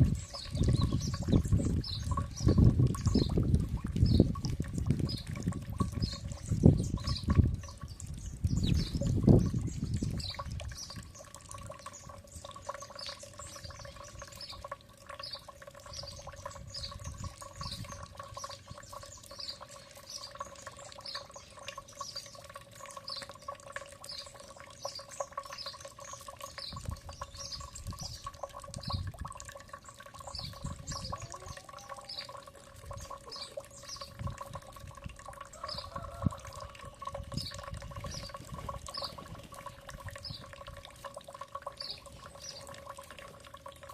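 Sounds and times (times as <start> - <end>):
bird chirping: 0.0 - 3.4, 5.9 - 29.0, 29.8 - 34.2, 37.3 - 40.5, 41.8 - 42.8.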